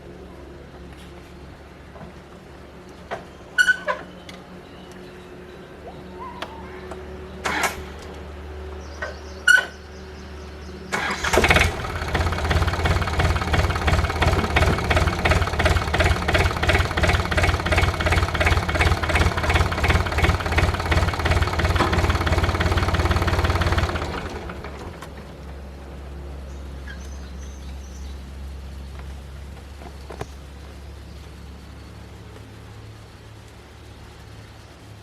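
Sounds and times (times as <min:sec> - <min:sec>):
small tractor engine running: 0:10.9 - 0:26.7.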